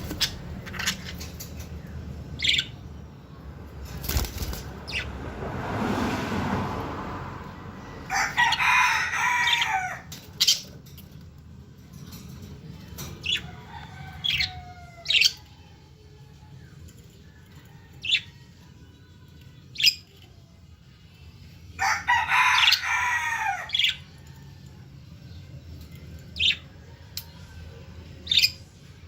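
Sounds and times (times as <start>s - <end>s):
lovebirds chirping: 0.0s - 3.2s, 25.1s - 28.9s.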